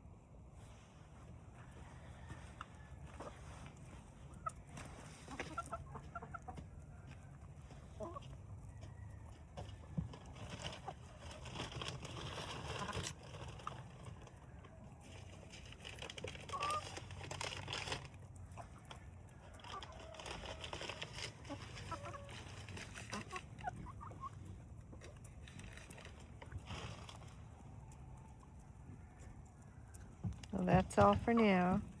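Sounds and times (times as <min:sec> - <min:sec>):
hens clucking and chirping: 0:01.0 - 0:11.2, 0:18.2 - 0:25.4, 0:27.3 - 0:31.7.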